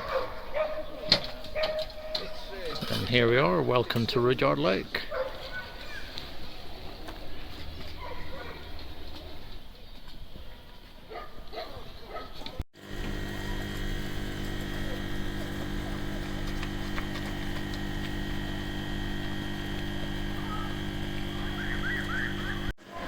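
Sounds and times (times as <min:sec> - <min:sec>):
steady machine hum: 0:12.8 - 0:22.8.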